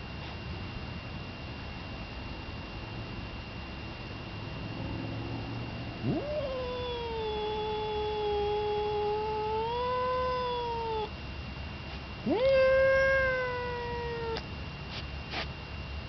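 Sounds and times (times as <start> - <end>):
cat yowling: 6.0 - 11.1, 12.2 - 14.4.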